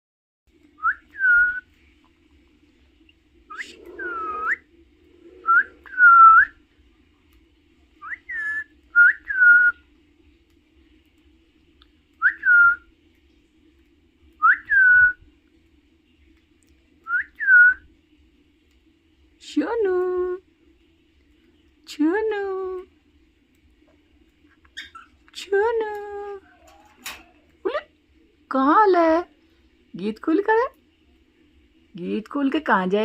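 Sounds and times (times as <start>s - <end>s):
parrot whistling: 3.5s - 4.7s, 5.3s - 6.6s, 8.0s - 9.8s, 24.7s - 25.2s.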